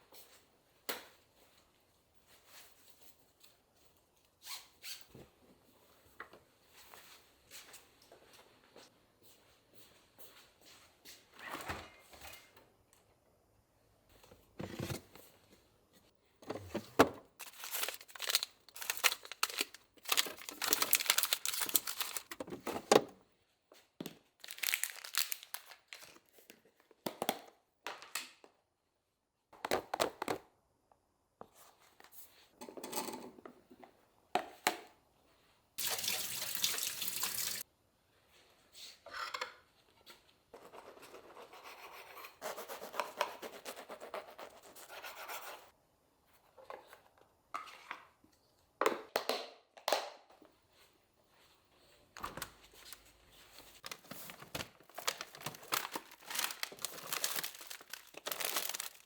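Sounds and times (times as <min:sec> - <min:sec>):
food prep rustling and tearing: 0:17.4 - 0:22.7, 0:24.4 - 0:26.4, 0:52.4 - 0:59.0.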